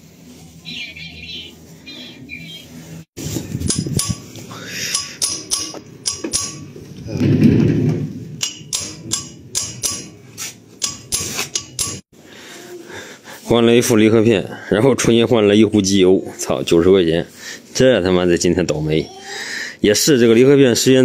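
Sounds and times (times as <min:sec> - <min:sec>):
hammer knocking on metal: 0:05.0 - 0:06.8, 0:08.4 - 0:10.2.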